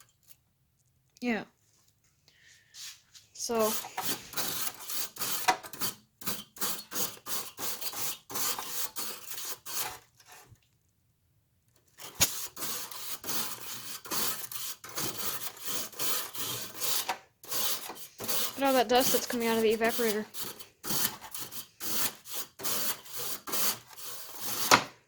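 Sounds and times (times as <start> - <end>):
brush scrubbing metal fins: 3.5 - 10.5, 12.0 - 24.7
sharp click: 12.1 - 12.4.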